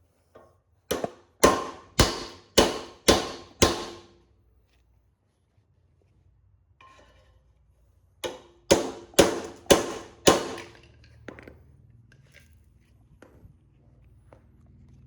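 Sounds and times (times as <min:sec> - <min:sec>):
hammer striking chisel on metal: 0:00.9 - 0:04.2, 0:08.2 - 0:10.9.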